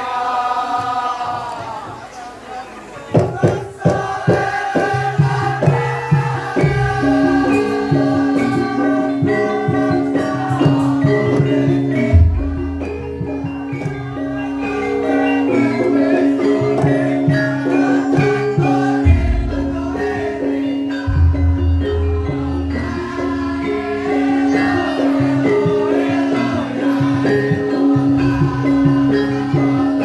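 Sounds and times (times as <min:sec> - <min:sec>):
gamelan music: 0:03.2 - 0:30.0
deep drum strokes: 0:12.1 - 0:14.0, 0:19.0 - 0:24.4.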